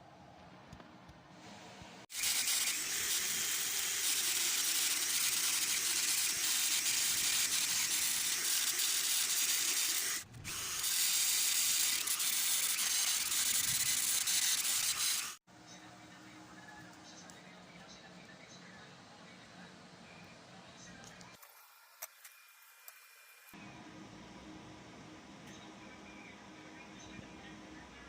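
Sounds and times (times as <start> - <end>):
power tool harsh hiss: 2.1 - 15.4.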